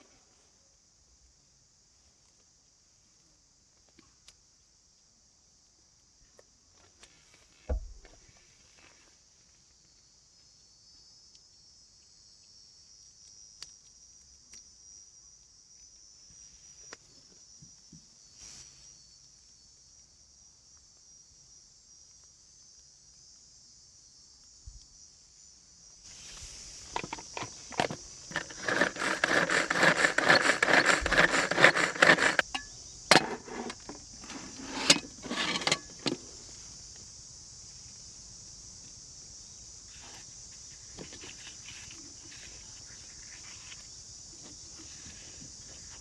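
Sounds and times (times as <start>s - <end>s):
insects chirring: 0.1s - 46.0s
rustling and clattering from handling: 26.8s - 36.2s.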